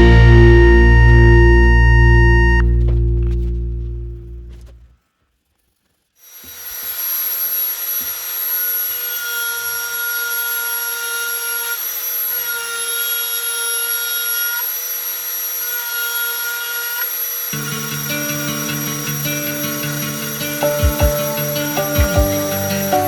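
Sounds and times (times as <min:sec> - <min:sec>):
rotary tool cutting wood: 0:06.2 - 0:20.7.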